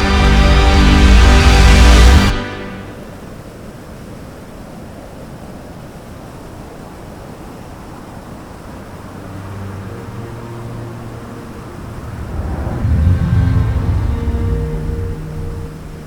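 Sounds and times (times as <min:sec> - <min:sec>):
waterfall roaring: 0:00.0 - 0:16.0
faint music: 0:07.9 - 0:16.0.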